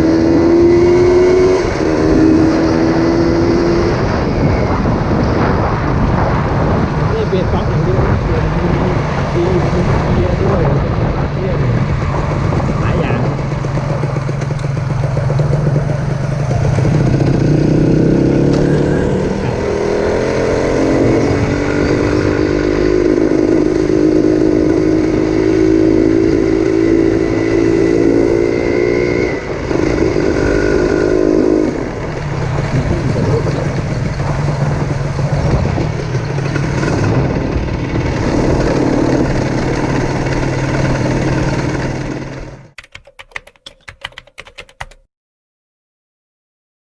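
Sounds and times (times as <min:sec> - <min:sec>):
two-stroke engine accelerating: 0:00.0 - 0:05.1, 0:07.4 - 0:42.8
sharp clicks: 0:42.8 - 0:45.0.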